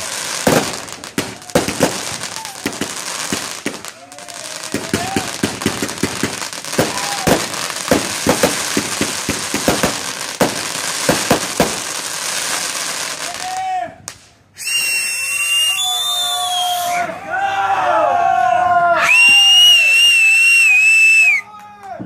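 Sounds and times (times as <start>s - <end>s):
people shouting: 0.0s - 8.6s, 16.2s - 19.6s
fireworks crackling: 0.0s - 17.0s
high whistling fireworks: 0.0s - 17.1s, 19.0s - 21.4s.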